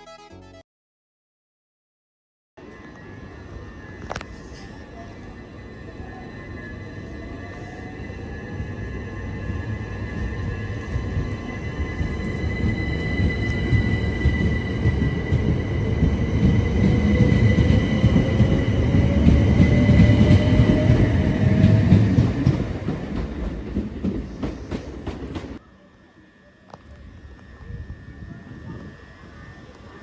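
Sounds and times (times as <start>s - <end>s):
train rumbling on rails: 3.2s - 25.6s.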